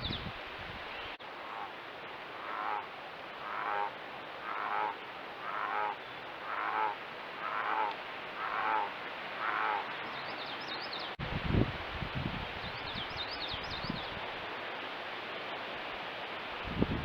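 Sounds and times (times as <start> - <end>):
animal harsh calls: 2.4 - 9.9.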